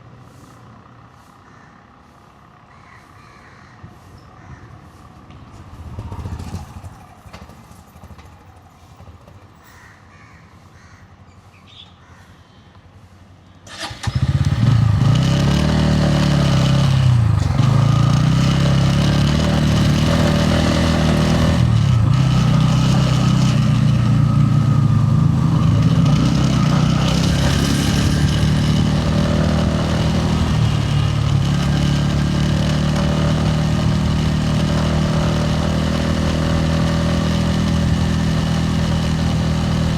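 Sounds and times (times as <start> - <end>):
faint street background: 0.0 - 39.9
motorcycle engine accelerating: 13.7 - 39.9.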